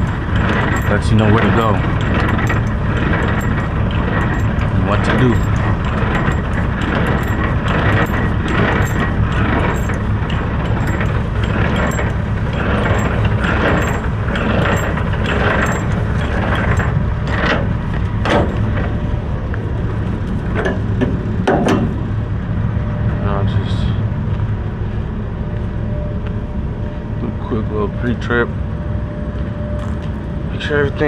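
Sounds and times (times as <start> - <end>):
metal knocks and clanks: 0.0 - 22.2
diesel truck engine idling: 0.0 - 28.8.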